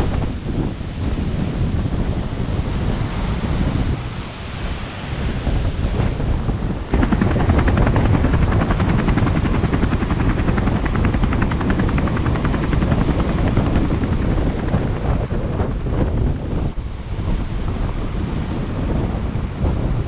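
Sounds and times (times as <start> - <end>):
wind rumble on microphone: 0.0 - 20.0
rapid chopping pulses: 6.0 - 16.8.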